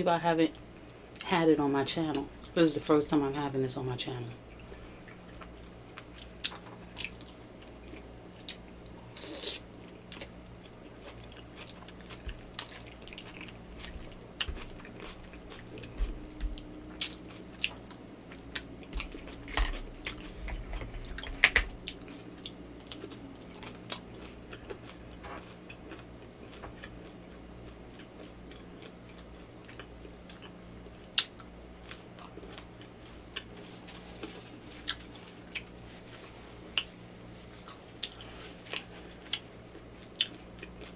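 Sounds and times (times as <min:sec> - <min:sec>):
crunchy chewing strokes: 0:04.5 - 0:40.9
chewing with wet mouth clicks: 0:10.0 - 0:20.3, 0:21.0 - 0:33.5, 0:39.2 - 0:40.9.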